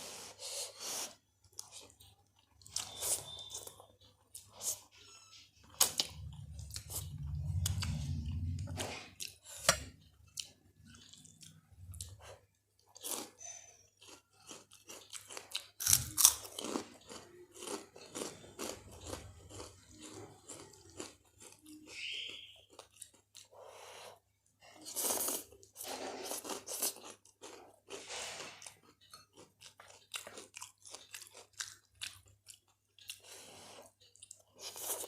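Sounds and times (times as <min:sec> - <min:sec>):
chewing with sharp crunches: 0:00.4 - 0:35.0
low rumble: 0:06.0 - 0:09.2.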